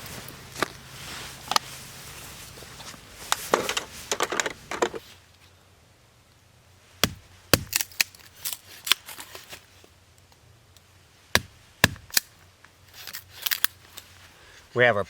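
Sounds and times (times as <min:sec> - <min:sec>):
wood cracking: 0:07.0 - 0:09.2, 0:11.4 - 0:12.4.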